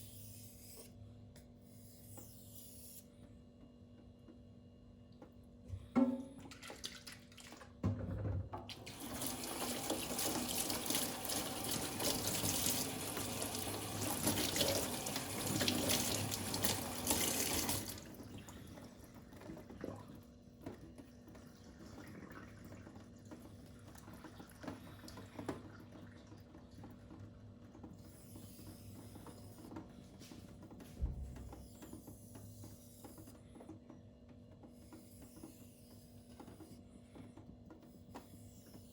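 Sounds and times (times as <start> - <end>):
water running from a tap: 8.8 - 18.5.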